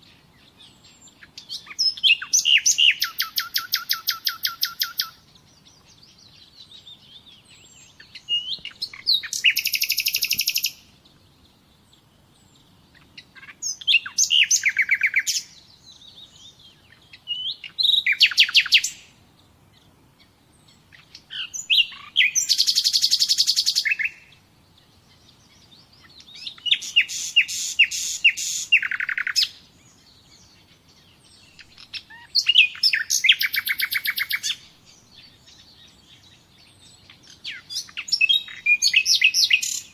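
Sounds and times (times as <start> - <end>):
faint bird chirps: 0.0 - 39.9
songbird trilling: 0.0 - 39.9.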